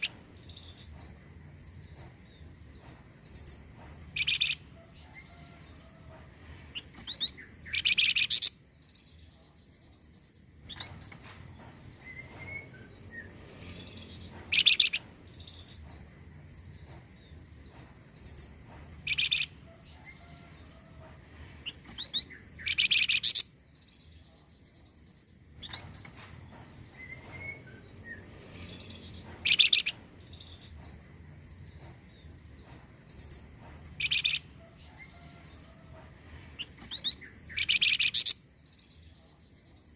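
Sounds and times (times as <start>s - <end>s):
bird singing bright phrases: 6.8s - 11.2s, 21.7s - 26.0s, 36.6s - 39.9s
soft bird chirps: 21.6s - 26.2s.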